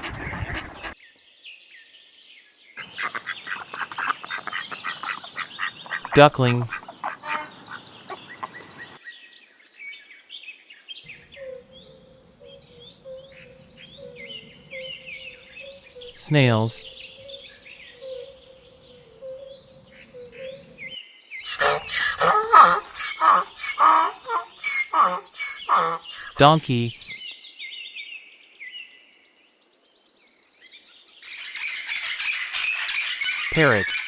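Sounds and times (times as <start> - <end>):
ducklings peeping: 0.0 - 1.0, 2.8 - 9.0
rapid chirping calls: 2.8 - 9.0.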